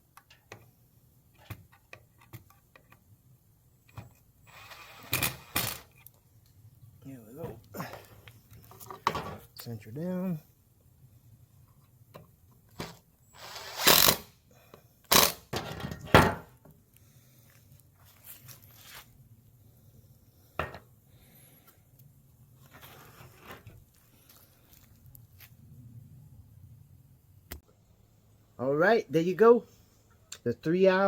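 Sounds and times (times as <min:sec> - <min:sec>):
light taps and scraping: 0:07.4 - 0:09.7.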